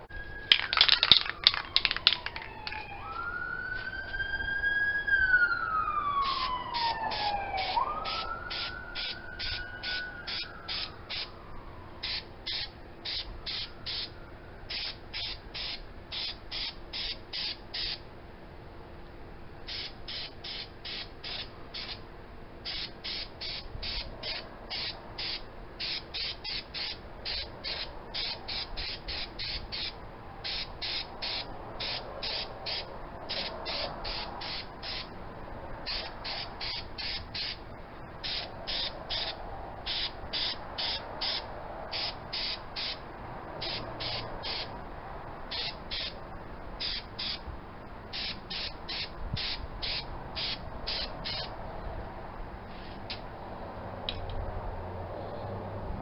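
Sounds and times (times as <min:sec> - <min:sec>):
siren: 0:00.0 - 0:14.7
animal chirping calls: 0:51.0 - 0:51.5.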